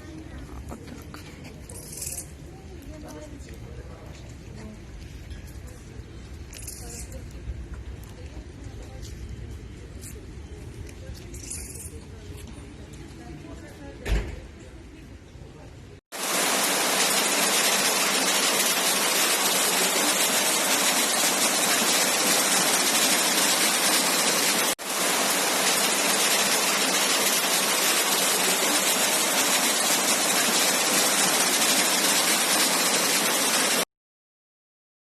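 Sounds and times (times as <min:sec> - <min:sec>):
heavy rain pouring: 0:16.1 - 0:33.8.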